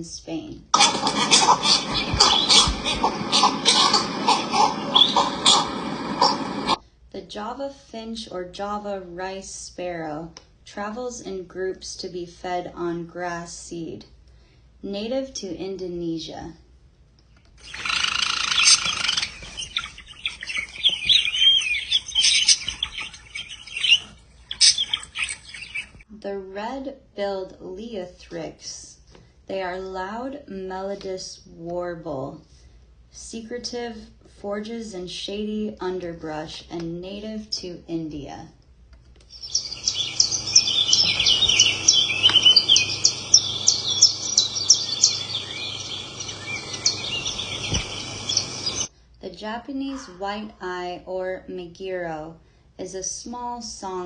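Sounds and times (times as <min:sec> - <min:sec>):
bird singing melodious warble: 0:00.8 - 0:06.8, 0:17.6 - 0:26.0, 0:39.3 - 0:48.9
sparrow chirping and trilling: 0:00.9 - 0:06.8, 0:17.6 - 0:26.0, 0:39.3 - 0:48.9.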